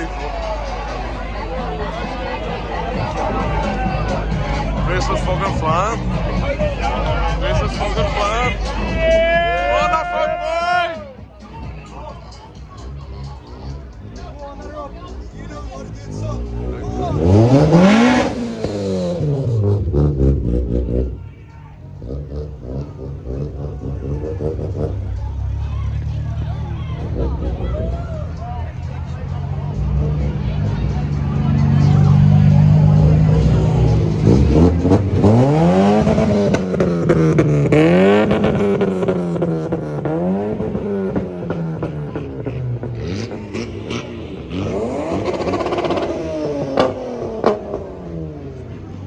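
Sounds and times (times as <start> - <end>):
car engine at low revs: 14.6 - 21.2, 21.8 - 49.0.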